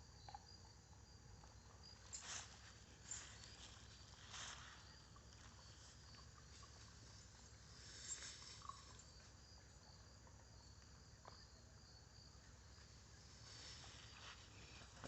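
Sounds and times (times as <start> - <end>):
insect chirping: 0.0 - 15.0.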